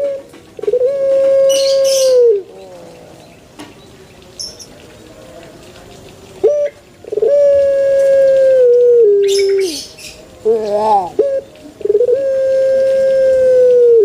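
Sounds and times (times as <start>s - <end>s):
dove cooing: 0.0s - 3.2s, 6.4s - 14.0s.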